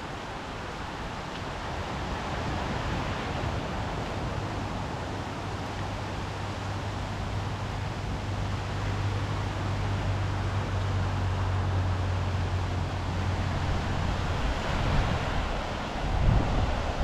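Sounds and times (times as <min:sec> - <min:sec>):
surf: 0:00.0 - 0:17.0
wind: 0:00.0 - 0:17.0.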